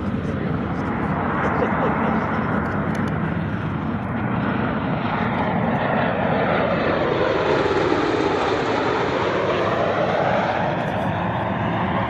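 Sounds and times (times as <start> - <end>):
aircraft engines roaring overhead: 0.0 - 12.0.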